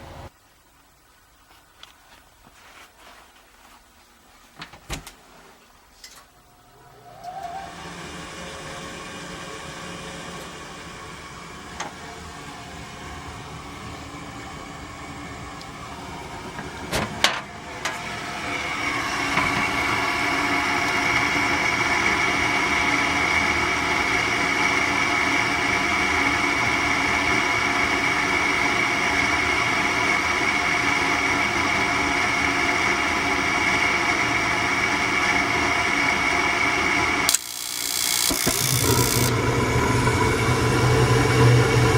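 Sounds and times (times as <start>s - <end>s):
gas furnace humming: 5.7s - 41.9s
high whine: 6.4s - 41.9s
sharp clicks: 37.3s - 39.3s.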